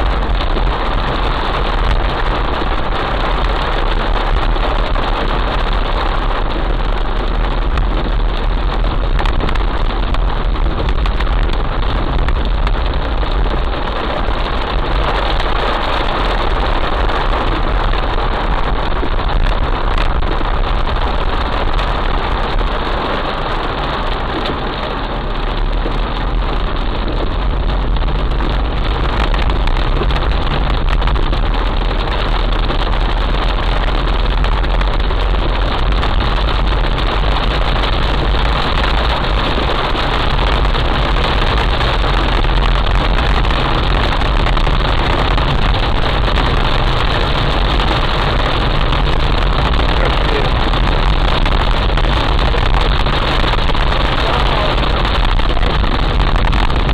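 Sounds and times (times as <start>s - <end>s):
deep low rumble: 0.0s - 56.9s
heavy rain hissing: 0.0s - 56.9s.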